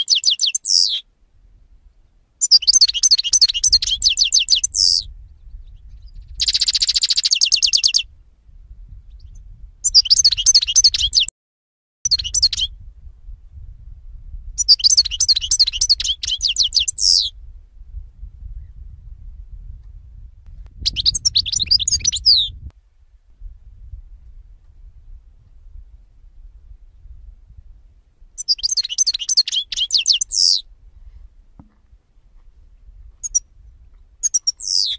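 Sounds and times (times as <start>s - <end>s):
songbirds chirping trills: 0.0s - 1.0s, 28.4s - 30.7s, 33.2s - 34.9s.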